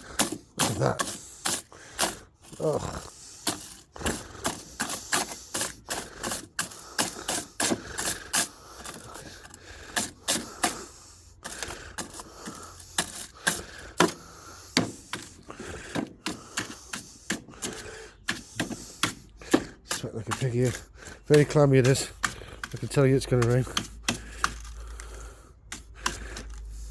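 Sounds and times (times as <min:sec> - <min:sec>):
brush knocking grass off lawnmower: 0:14.8 - 0:24.7.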